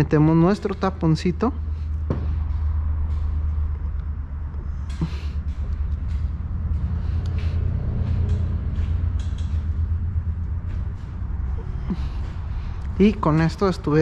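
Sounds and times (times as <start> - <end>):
steady low hum: 0.0 - 14.0
clicks and taps of tools: 2.1 - 9.8.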